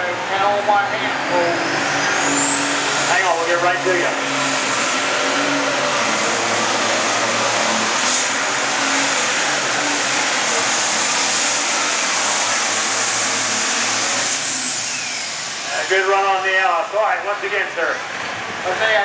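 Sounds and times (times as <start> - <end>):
tractor diesel engine revving hard: 0.0 - 16.7
high engine whine falling in pitch: 0.0 - 18.7.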